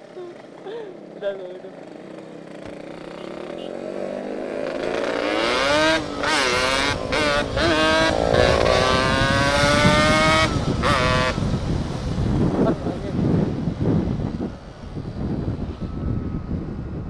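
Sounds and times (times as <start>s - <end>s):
two-stroke motorcycle engine accelerating: 1.2s - 12.8s.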